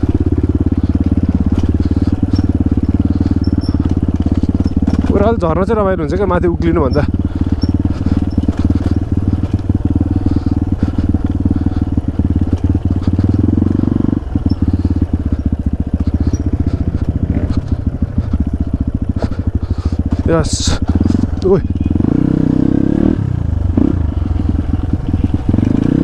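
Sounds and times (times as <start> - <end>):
dirt bike engine running: 0.0 - 26.0.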